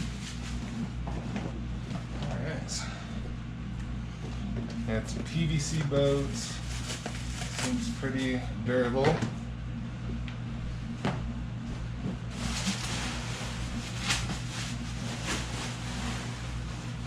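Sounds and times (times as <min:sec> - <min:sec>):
steady low hum: 0:00.0 - 0:17.0
inflatable kayak material rustling: 0:12.3 - 0:17.0.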